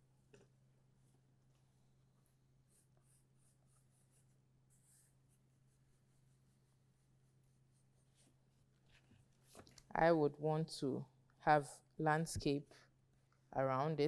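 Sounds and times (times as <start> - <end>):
pencil scratching on paper: 2.2 - 8.8.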